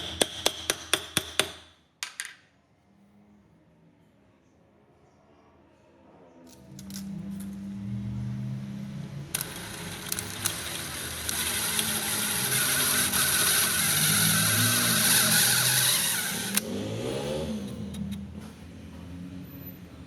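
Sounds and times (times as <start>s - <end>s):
power tool motor running: 9.3s - 18.2s.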